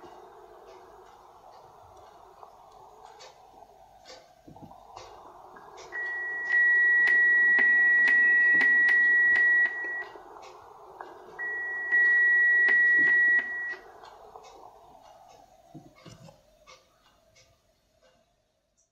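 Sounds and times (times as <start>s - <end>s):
receiver hiss: 0.0s - 17.5s
faint regular clicks: 0.0s - 18.9s
carrier beat-note tone: 11.4s - 13.9s.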